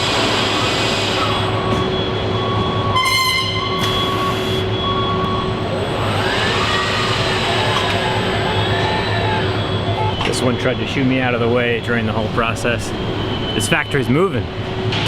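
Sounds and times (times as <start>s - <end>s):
machinery humming: 0.0s - 15.0s
electronic warning beeps: 1.2s - 6.1s, 8.5s - 14.6s
horn-like buzzer blast: 2.9s - 4.7s.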